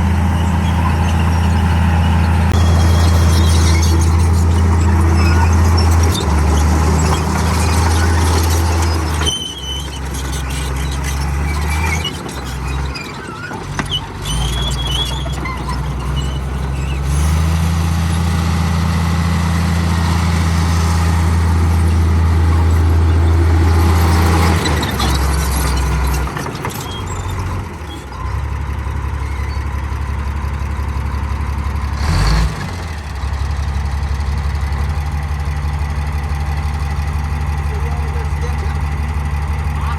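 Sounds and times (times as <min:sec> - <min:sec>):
short high-pitched squeals: 0:00.0 - 0:17.2
bulldozer diesel engine running: 0:00.0 - 0:39.9.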